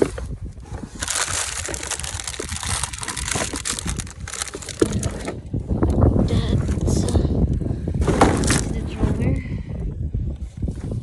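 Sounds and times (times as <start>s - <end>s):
trash bags crinkling and crunching: 0.9s - 5.4s.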